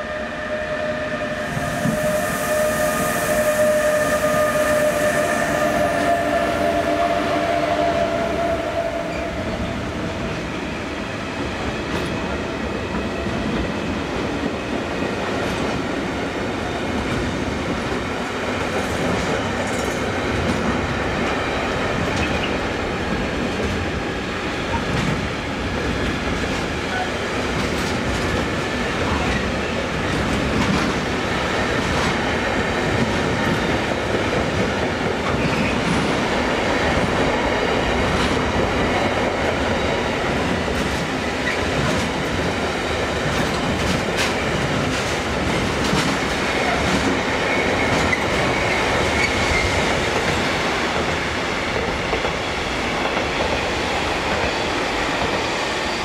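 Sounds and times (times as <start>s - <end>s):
train wheels clicking over rail joints: 43.1s - 51.1s.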